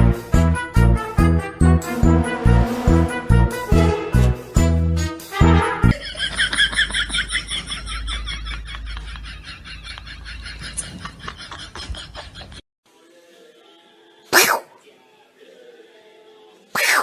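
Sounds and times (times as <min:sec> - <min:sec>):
jingly music: 0:00.0 - 0:06.0.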